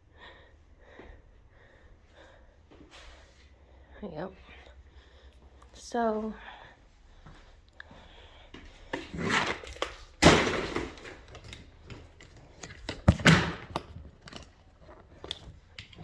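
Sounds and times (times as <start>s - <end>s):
rustling and scraping: 8.6s - 16.0s.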